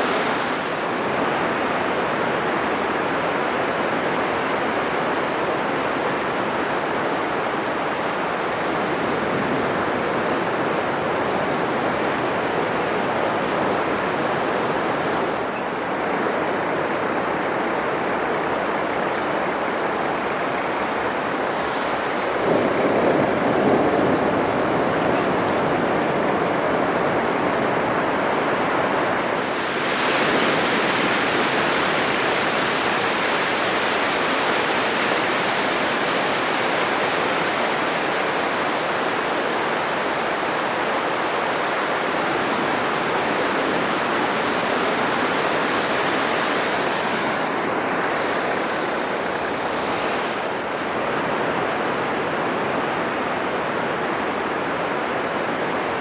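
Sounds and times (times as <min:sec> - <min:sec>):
surf breaking on beach: 0:00.0 - 0:04.0, 0:04.9 - 0:55.6.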